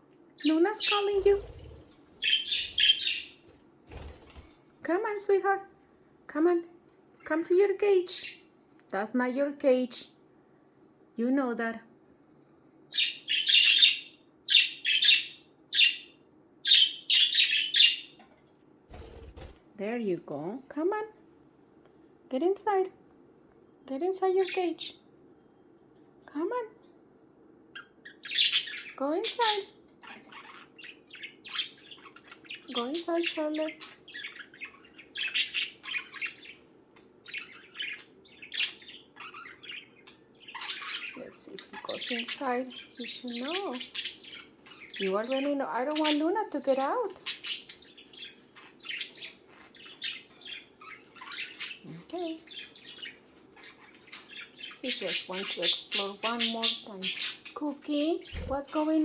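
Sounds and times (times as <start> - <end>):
budgerigars chirping and chattering: 0.4 - 4.5, 12.9 - 18.2, 27.8 - 59.0.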